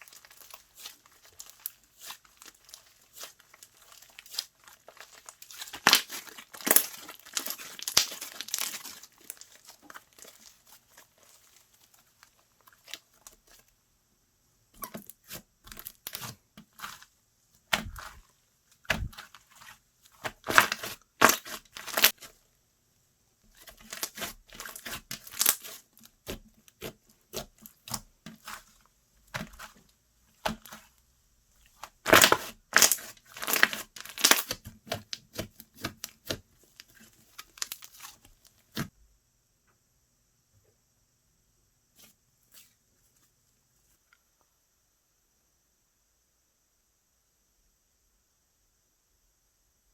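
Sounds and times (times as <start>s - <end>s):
slime squished by hand: 0.0s - 13.6s, 17.7s - 22.3s, 23.6s - 29.8s, 31.7s - 38.9s.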